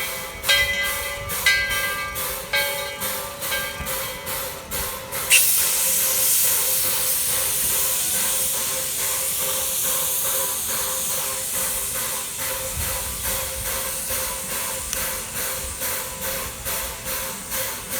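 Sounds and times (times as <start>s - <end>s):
steam locomotive chuffing: 0.0s - 17.9s
escaping steam hiss: 3.9s - 17.9s.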